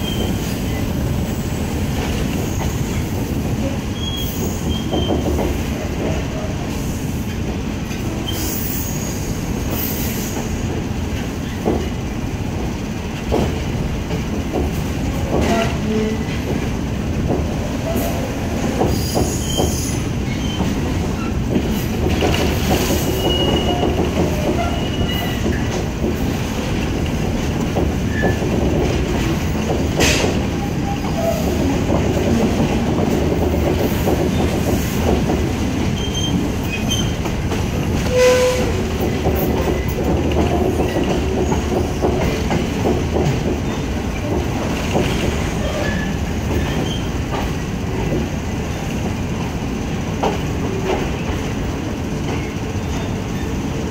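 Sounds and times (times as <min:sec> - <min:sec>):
train wheels rumbling on rails: 0:00.0 - 0:53.9
wheel squeals: 0:18.9 - 0:21.4, 0:23.1 - 0:25.7, 0:36.0 - 0:37.2.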